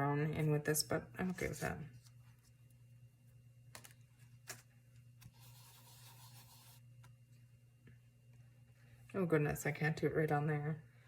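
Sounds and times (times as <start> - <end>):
brush dabbing ink on paper: 5.2 - 6.8.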